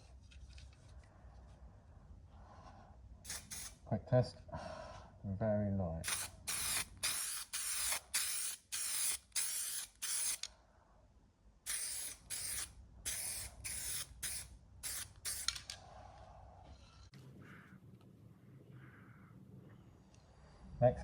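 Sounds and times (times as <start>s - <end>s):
spray can hissing: 3.3s - 3.8s, 6.1s - 10.5s, 11.7s - 15.6s.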